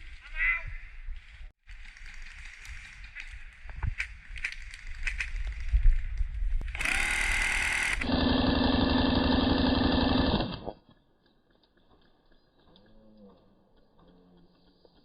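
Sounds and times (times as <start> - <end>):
airsoft minigun firing: 6.7 - 10.8.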